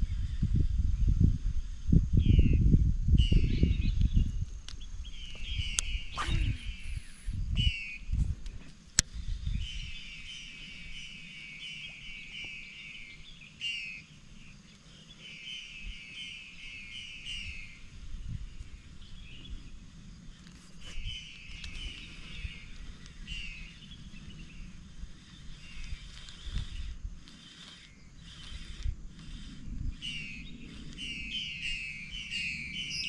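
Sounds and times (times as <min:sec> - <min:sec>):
bird chirping rapidly: 0:21.0 - 0:33.0.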